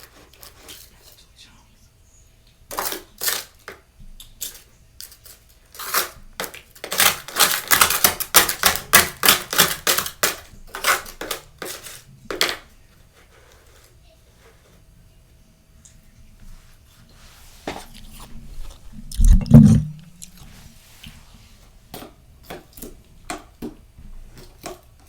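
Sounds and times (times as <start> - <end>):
freezer frost crunching: 2.7 - 13.9, 17.9 - 20.7.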